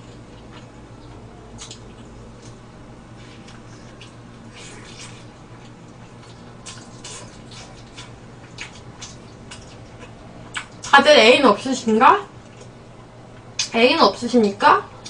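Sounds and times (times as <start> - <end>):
wet chewing and lip smacks: 0.1 - 2.6, 3.2 - 10.9.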